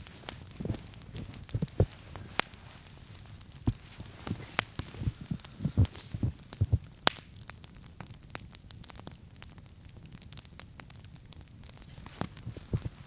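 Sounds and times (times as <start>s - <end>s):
campfire crackling and popping: 0.0s - 13.0s
dull low thumps: 3.1s - 7.0s.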